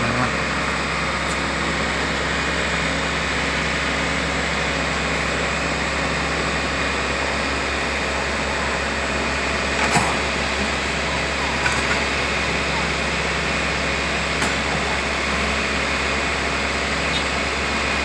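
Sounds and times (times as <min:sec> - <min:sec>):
heavy machinery engine hum: 0:00.0 - 0:18.0.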